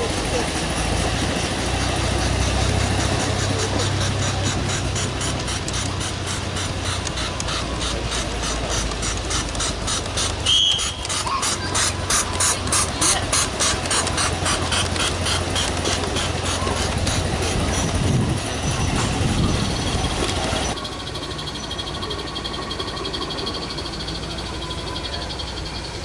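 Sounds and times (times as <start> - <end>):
steam locomotive chuffing: 0.0 - 26.0
high whistle: 10.4 - 11.3.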